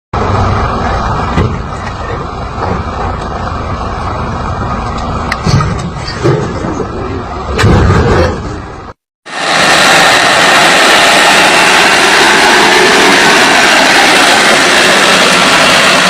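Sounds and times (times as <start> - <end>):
motor vehicle rumble: 0.2 - 16.0.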